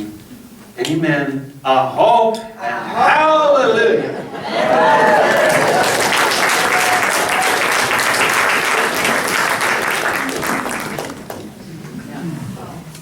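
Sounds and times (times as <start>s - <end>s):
voices calling out: 2.6s - 8.3s
congregation applauding: 4.4s - 11.6s.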